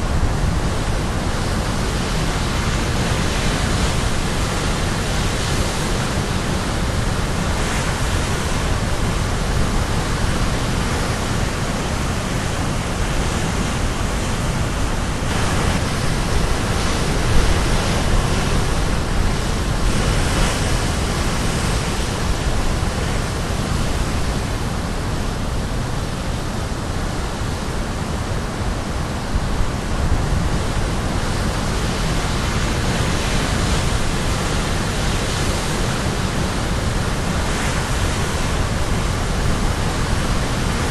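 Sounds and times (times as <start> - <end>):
ocean surf crashing: 0.0 - 40.9.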